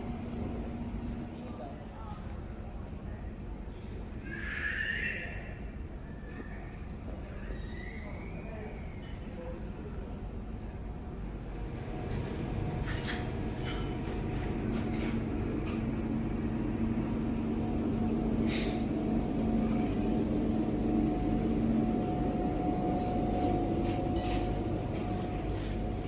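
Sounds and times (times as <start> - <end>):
ship machinery hum: 0.0 - 1.6, 11.2 - 26.0.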